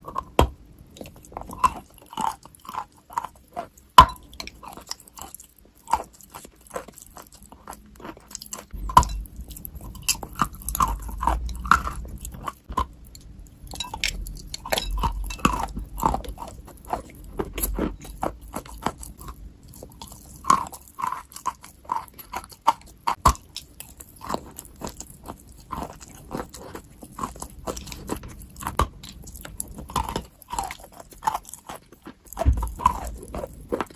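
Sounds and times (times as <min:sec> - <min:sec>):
person chewing crunchy food: 0:00.0 - 0:33.9.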